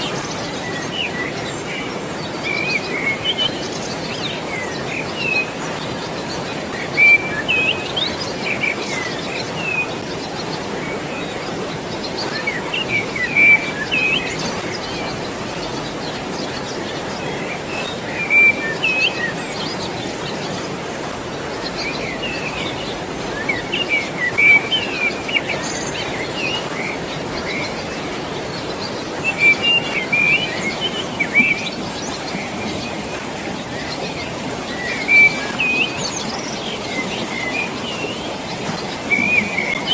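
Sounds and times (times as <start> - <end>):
birds chirping: 0.0 - 39.9
flowing water: 0.0 - 39.9.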